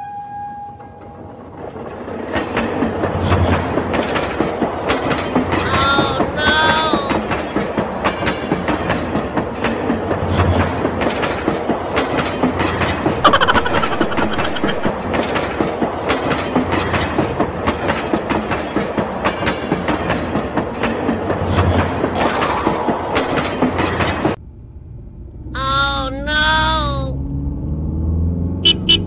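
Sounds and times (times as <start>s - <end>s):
brief high tone: 25.6s - 27.2s.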